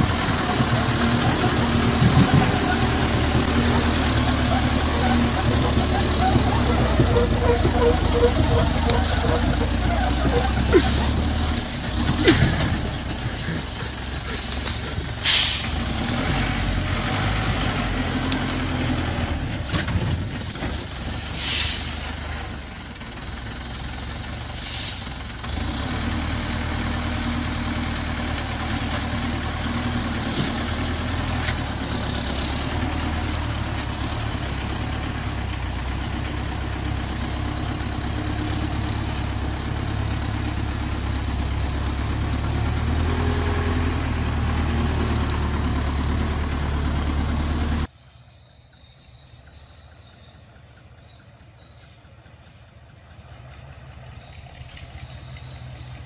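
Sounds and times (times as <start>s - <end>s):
truck engine running: 0.0s - 47.9s, 49.4s - 56.0s
air hisses: 13.4s - 15.8s.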